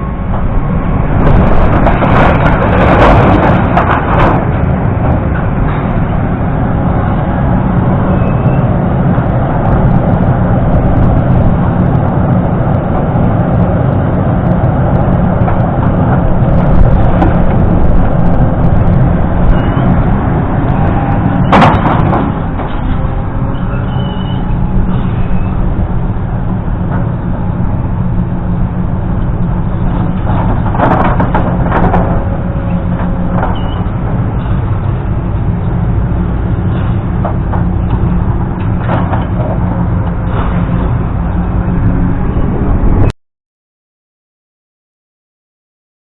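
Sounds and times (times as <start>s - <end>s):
engine running steadily: 0.0s - 43.1s
rattles and knocks: 1.2s - 6.3s, 20.8s - 23.1s, 29.7s - 35.0s, 36.6s - 41.5s.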